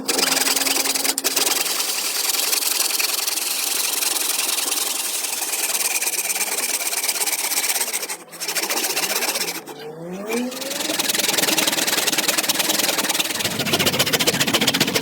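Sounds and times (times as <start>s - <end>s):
small electric tool whirring: 0.0s - 15.0s.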